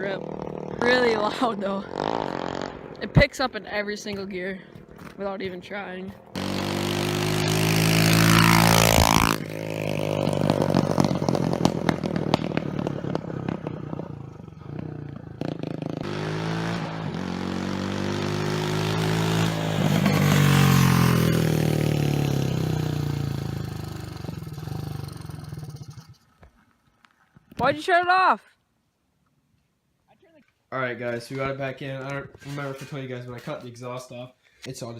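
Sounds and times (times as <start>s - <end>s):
pit bike engine revving: 0.0s - 3.4s, 6.3s - 26.2s.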